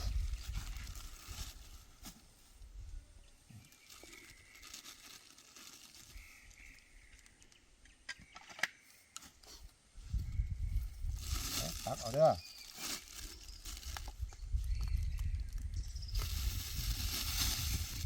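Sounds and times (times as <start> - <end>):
faint outdoor ambience: 0.0 - 18.0.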